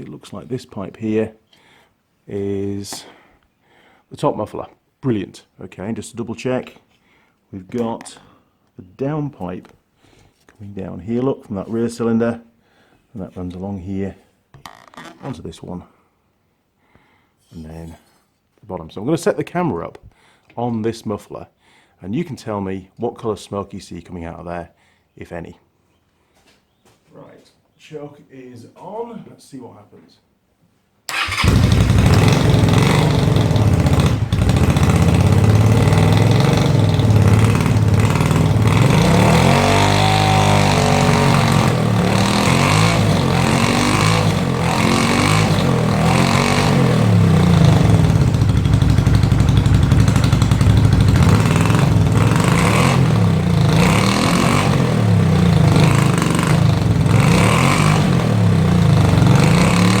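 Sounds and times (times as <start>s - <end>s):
motorcycle engine revving: 31.1s - 60.0s.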